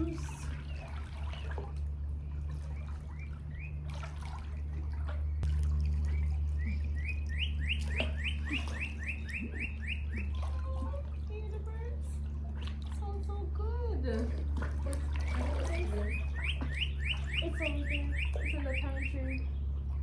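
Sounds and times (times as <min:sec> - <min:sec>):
steady low hum: 0:00.0 - 0:20.0
bird chirping: 0:02.7 - 0:03.8, 0:06.1 - 0:10.4, 0:15.2 - 0:19.8.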